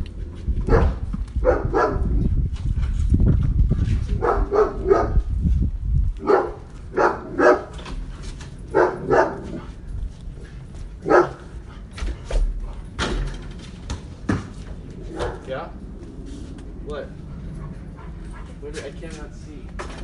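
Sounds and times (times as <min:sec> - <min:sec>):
dog barking: 0:00.7 - 0:02.2, 0:04.2 - 0:05.2, 0:06.2 - 0:07.8, 0:08.7 - 0:09.6, 0:11.0 - 0:11.5, 0:15.1 - 0:15.4
low rumble: 0:12.5 - 0:19.8.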